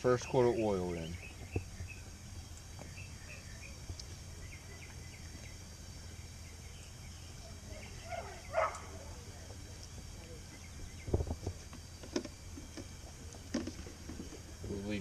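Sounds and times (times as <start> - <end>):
low hum: 0.0 - 15.0
bird chirps: 0.1 - 9.0.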